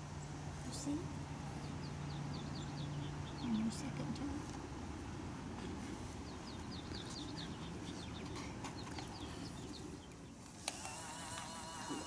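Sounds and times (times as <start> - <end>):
low outdoor background: 0.0 - 12.0
songbird chirping: 0.0 - 12.0.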